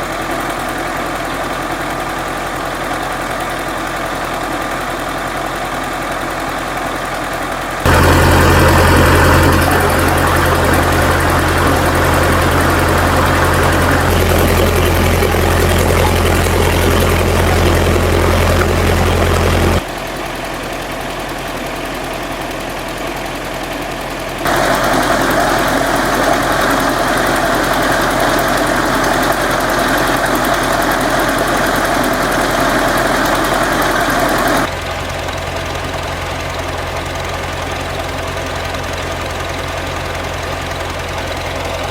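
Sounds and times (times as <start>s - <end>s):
engine running with knocking: 0.0s - 41.9s.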